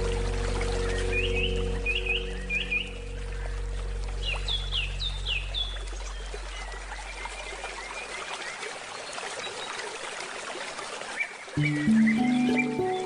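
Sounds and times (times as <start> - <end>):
low musical tone: 0.0 - 6.5, 11.6 - 13.0
river water running: 0.0 - 13.0
bird chirping: 11.6 - 13.0.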